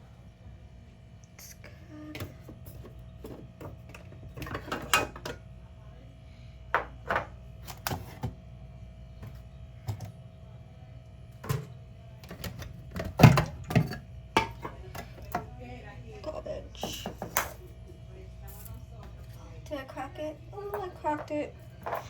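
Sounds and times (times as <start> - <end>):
items clattering and knocking: 2.2 - 5.5, 6.7 - 8.4, 11.3 - 15.6, 16.8 - 17.7, 20.6 - 22.0.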